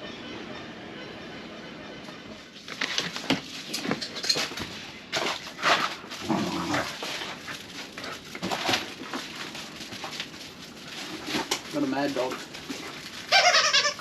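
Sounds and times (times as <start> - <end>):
dog barking and crying: 13.3 - 14.0.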